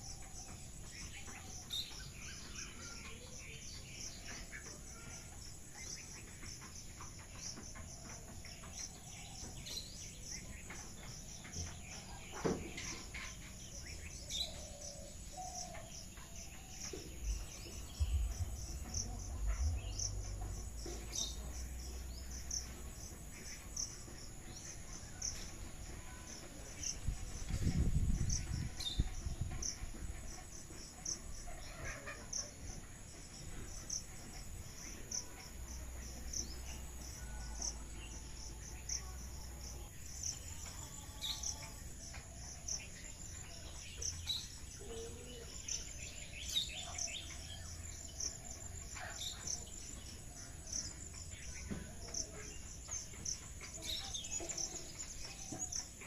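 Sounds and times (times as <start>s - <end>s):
crickets chirping: 0.0s - 56.0s
low rumble: 17.2s - 23.1s.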